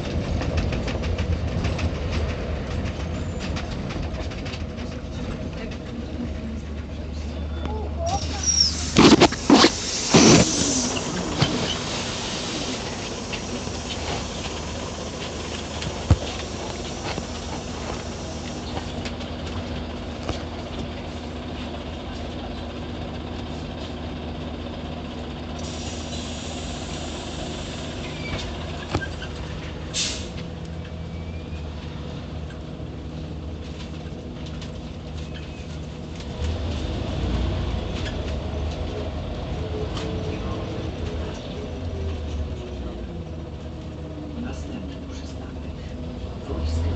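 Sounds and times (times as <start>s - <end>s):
bus engine running: 0.0s - 46.9s
air hiss: 8.2s - 14.2s.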